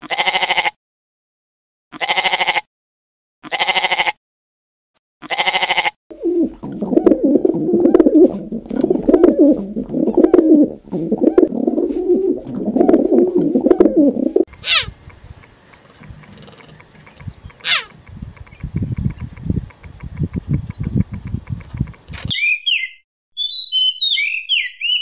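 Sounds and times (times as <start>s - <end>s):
sheep bleating: 0.0s - 0.8s, 1.9s - 2.7s, 3.4s - 4.2s, 5.2s - 6.0s
pigeons cooing: 6.1s - 14.9s.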